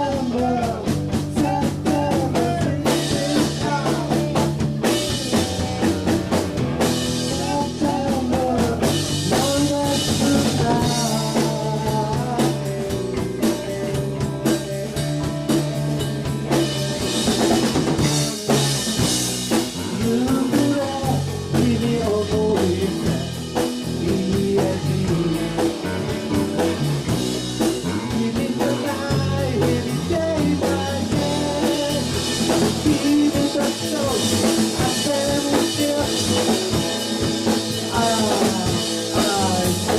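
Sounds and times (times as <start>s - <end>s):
person singing: 0.0s - 6.0s, 7.2s - 15.1s, 19.8s - 27.1s, 27.8s - 39.9s
bass guitar: 0.0s - 39.9s
drum kit: 0.0s - 39.9s
guitar: 0.0s - 39.9s.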